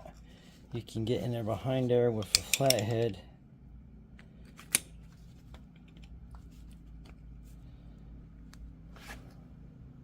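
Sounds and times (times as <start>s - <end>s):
low steady hum: 0.0s - 10.0s
screwdriver metallic click: 2.2s - 3.0s.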